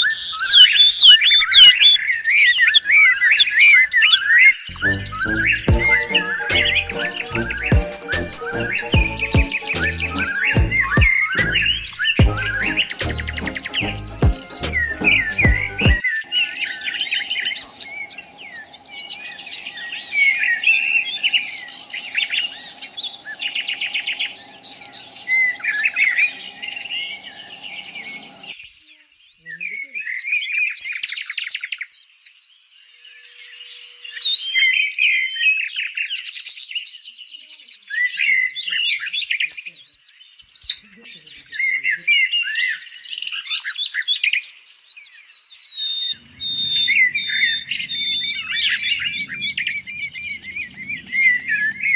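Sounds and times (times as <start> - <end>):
birds chirping: 0.0 - 30.2, 45.0 - 51.9.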